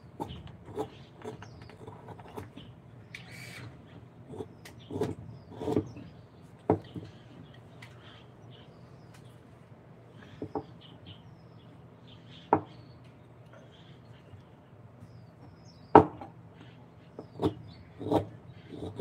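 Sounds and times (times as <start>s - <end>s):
sharp wooden knocks: 15.9s - 16.3s.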